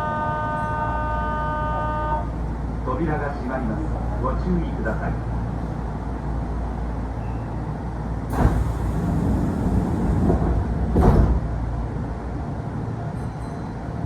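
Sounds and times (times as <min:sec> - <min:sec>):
train low rumble: 0:00.0 - 0:14.0
air hiss of train doors: 0:08.3 - 0:11.4.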